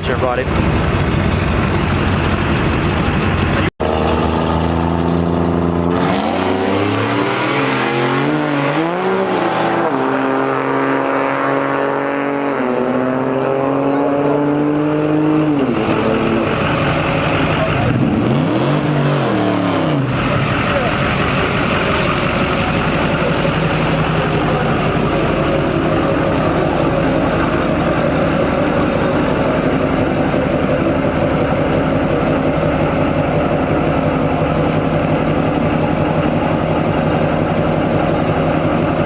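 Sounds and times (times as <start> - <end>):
diesel truck engine idling: 0.0 - 3.7, 15.5 - 18.5, 20.0 - 39.0.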